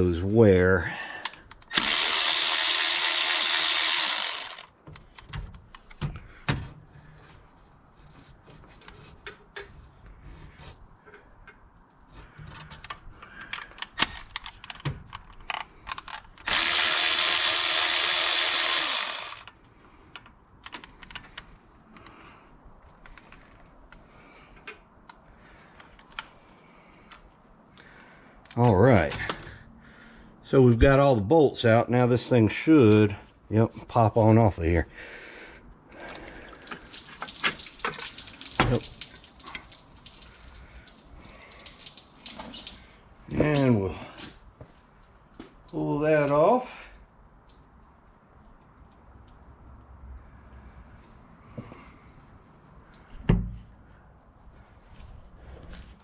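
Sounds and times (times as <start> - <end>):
power tool spinning bolts: 1.6 - 4.7, 16.4 - 19.5.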